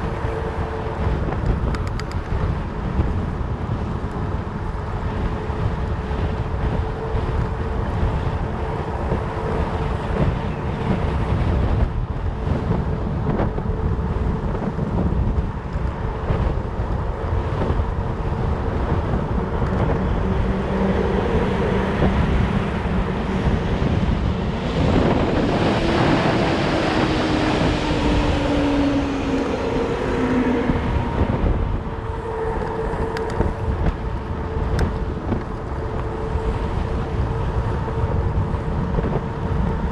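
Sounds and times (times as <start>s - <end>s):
wind buffeting microphone: 0.0s - 39.9s
rush with falling tone: 24.4s - 32.0s.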